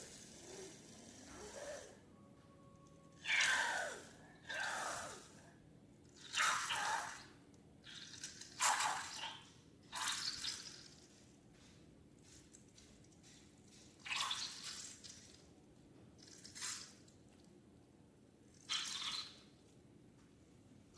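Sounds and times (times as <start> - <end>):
liquid pouring: 6.0 - 11.3, 13.2 - 15.5, 18.5 - 19.5.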